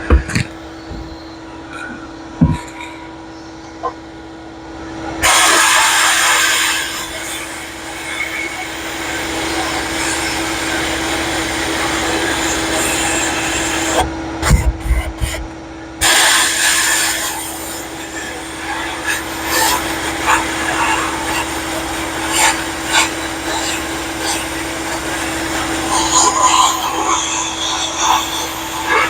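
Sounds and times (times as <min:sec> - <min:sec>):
low knocks: 0:00.0 - 0:01.2
vacuum humming: 0:00.0 - 0:29.0
media blaster hissing: 0:05.2 - 0:29.0.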